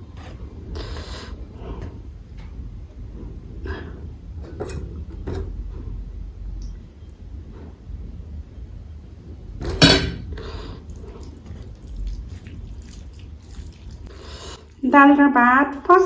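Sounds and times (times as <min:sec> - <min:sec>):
faint low rumble: 0:00.0 - 0:16.0
plate or utensil knocks: 0:09.7 - 0:10.3.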